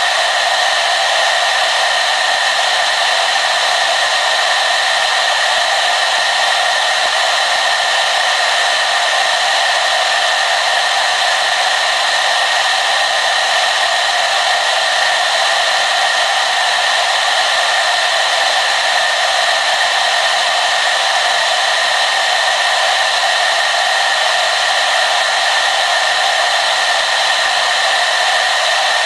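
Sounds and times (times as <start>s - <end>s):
hair dryer running: 0.0s - 29.0s.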